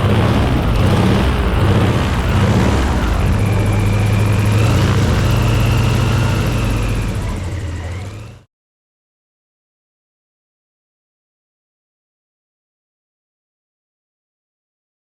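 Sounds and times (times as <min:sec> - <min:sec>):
propeller plane engine running: 0:00.0 - 0:08.5
faint high whine: 0:00.6 - 0:08.4.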